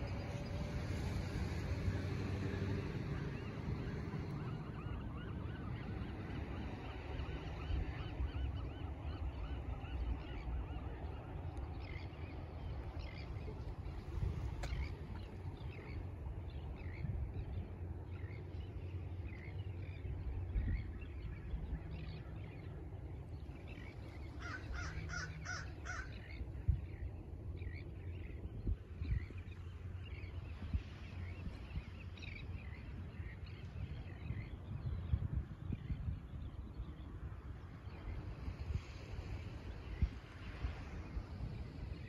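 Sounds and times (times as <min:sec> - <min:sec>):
steady low rumble: 0:00.0 - 0:42.0
birds cawing: 0:24.3 - 0:26.3
birds harsh calls: 0:24.3 - 0:26.4.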